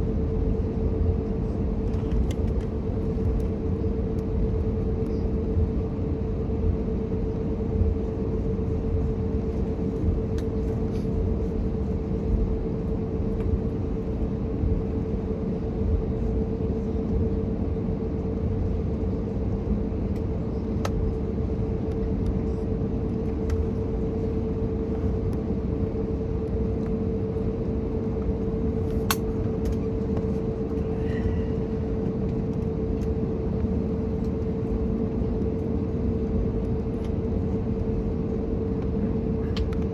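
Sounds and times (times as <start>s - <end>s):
airplane cabin drone: 0.0s - 39.9s.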